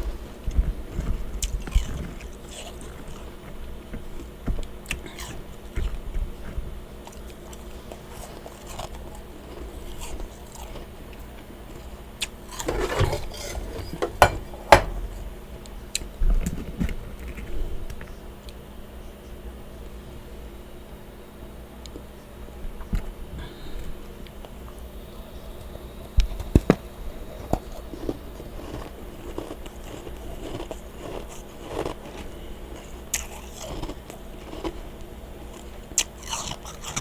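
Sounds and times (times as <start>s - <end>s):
person chewing and crunching frost: 0.0s - 16.1s, 26.4s - 37.0s
steady low hum: 0.0s - 37.0s.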